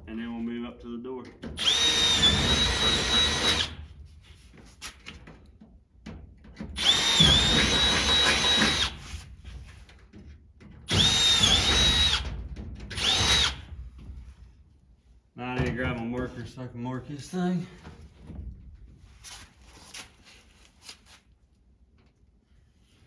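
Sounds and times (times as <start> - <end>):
power drill drilling: 1.6 - 3.8, 6.8 - 9.1, 10.9 - 12.2, 12.9 - 13.7.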